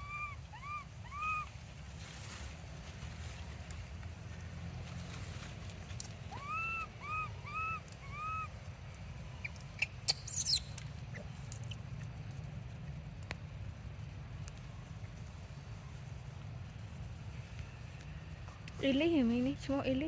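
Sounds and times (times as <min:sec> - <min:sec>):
baby monkey crying: 0:00.0 - 0:01.5, 0:06.3 - 0:08.6, 0:10.1 - 0:10.7.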